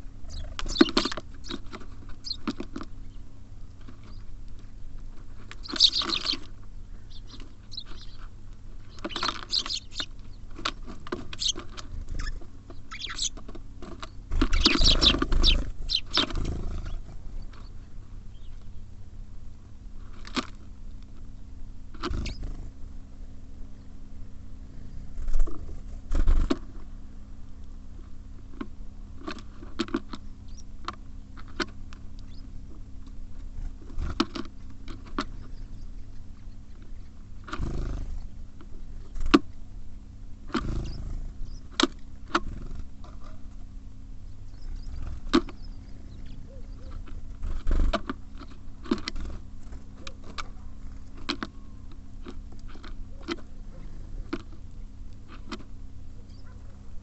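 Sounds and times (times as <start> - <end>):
wings fluttering: 0.0 - 3.2, 3.8 - 18.6, 21.9 - 22.8, 24.8 - 26.9, 33.3 - 39.6, 40.5 - 43.6, 44.5 - 51.5
birds pecking seed: 0.0 - 57.0
low hum: 0.0 - 57.0.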